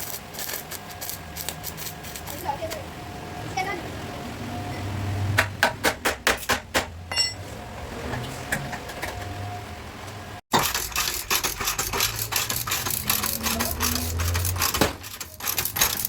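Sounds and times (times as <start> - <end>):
short metallic ring: 7.1 - 7.4.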